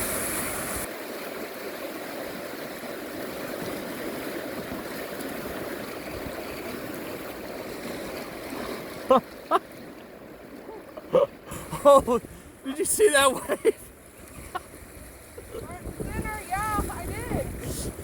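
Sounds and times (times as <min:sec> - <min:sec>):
river water rushing: 0:00.0 - 0:18.0
person crying out: 0:11.1 - 0:12.3.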